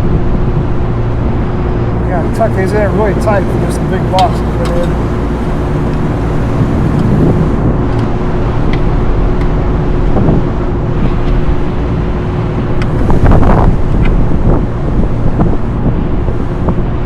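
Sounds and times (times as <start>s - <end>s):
machinery hum: 0.0s - 16.8s
wind buffeting microphone: 0.0s - 17.0s
wire connectors clicking and rustling: 3.0s - 5.2s.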